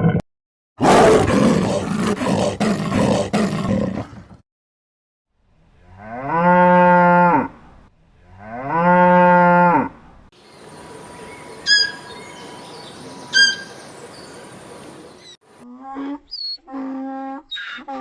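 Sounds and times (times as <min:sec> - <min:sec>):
steady hiss: 0:10.4 - 0:15.3
cow mooing: 0:11.2 - 0:14.6
short high chirps: 0:11.6 - 0:14.4.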